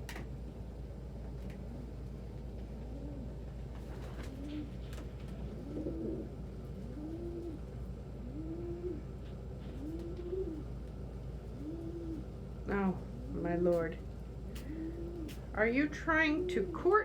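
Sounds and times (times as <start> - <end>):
pigeon cooing: 2.7 - 10.8, 11.4 - 12.4, 14.5 - 15.5, 16.1 - 16.9.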